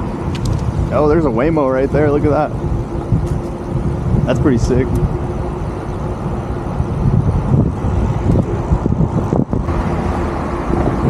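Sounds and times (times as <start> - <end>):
city street traffic: 0.0 - 11.0
wind buffeting microphone: 0.0 - 11.0.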